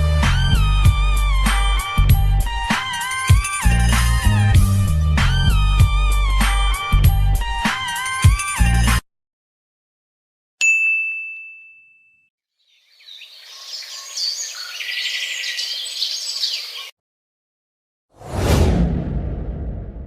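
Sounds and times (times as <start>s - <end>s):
bright ding: 10.6s - 12.3s
birds chirping: 12.6s - 16.9s
sudden loud hit: 18.2s - 20.0s.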